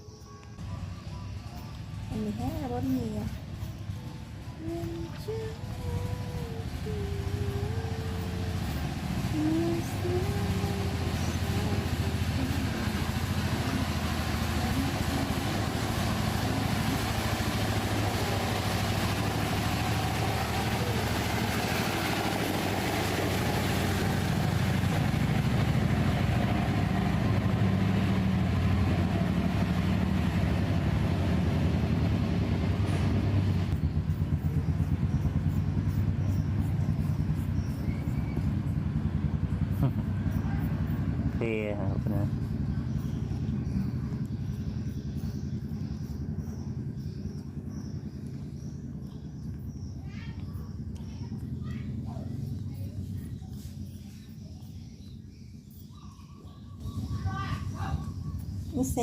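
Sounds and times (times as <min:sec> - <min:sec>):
low motor hum: 0:00.0 - 0:59.0
fast even pulsing: 0:02.0 - 0:49.8.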